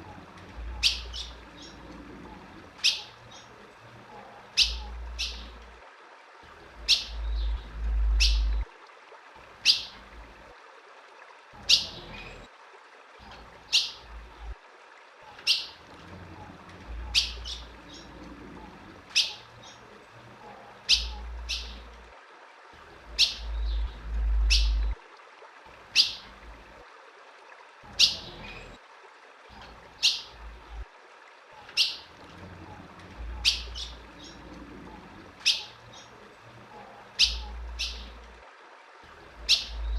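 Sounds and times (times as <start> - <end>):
bird chip calls: 0.6 - 1.8, 2.8 - 3.5, 4.5 - 5.6, 6.8 - 8.6, 15.3 - 15.8, 17.0 - 18.1, 19.1 - 19.8, 20.8 - 21.9, 23.1 - 25.0, 25.9 - 26.3, 29.6 - 30.4, 31.6 - 32.1, 33.4 - 34.4, 35.4 - 36.1, 37.2 - 38.2, 39.4 - 39.9
low rumble: 7.2 - 8.7, 23.4 - 25.0.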